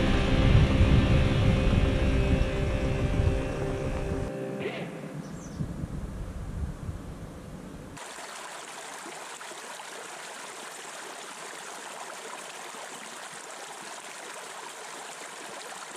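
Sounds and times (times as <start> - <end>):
low rumble: 0.0 - 4.3
stream flowing: 8.0 - 15.9.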